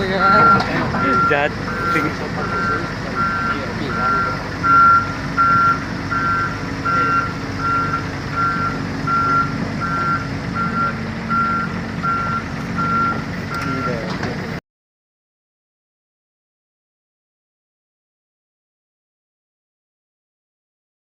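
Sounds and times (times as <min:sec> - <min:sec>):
diesel engine running: 0:00.0 - 0:14.6
reversing alarm beeping: 0:00.1 - 0:14.1.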